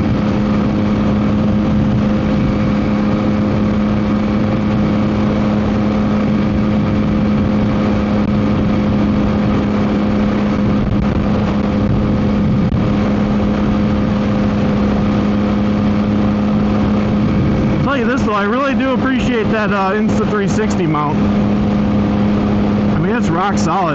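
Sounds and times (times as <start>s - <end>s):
motorcycle engine cruising: 0.0s - 23.9s
wind noise on microphone: 0.0s - 23.9s.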